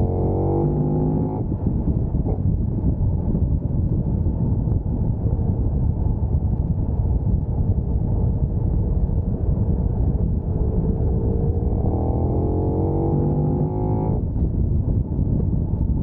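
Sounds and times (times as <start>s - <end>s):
wind rush on microphone: 0.0s - 16.0s
motorcycle engine running: 6.9s - 15.8s.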